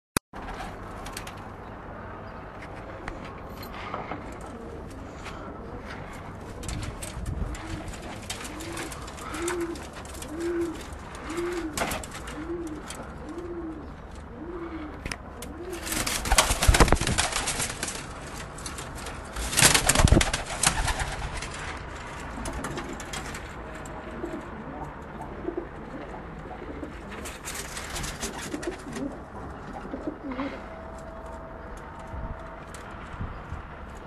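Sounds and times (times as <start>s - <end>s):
pigeons cooing: 2.8s - 30.9s
loud rustling: 6.0s - 13.2s, 15.7s - 23.8s.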